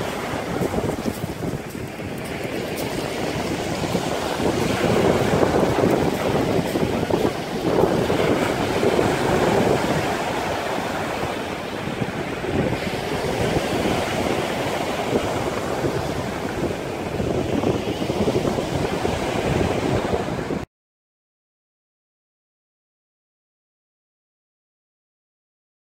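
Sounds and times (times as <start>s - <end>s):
sea waves rushing: 0.0s - 20.7s
wind buffeting microphone: 0.0s - 20.7s.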